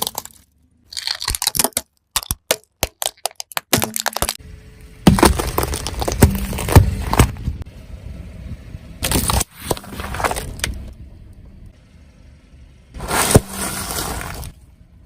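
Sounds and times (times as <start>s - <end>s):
tyres crushing objects: 0.0s - 4.4s, 5.0s - 7.6s, 13.0s - 14.6s.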